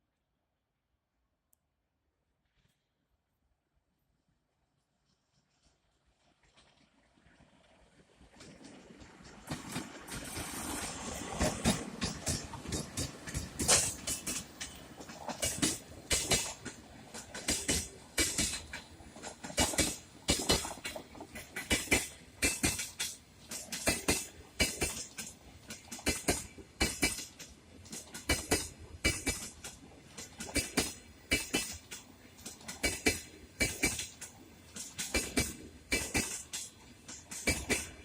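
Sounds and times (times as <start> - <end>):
train wheels clacking over rail joints: 8.3 - 38.0.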